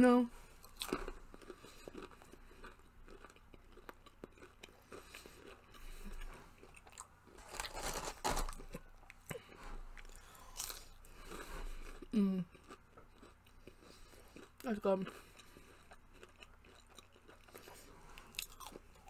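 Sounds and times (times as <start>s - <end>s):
person chewing crunchy food: 0.5s - 19.0s.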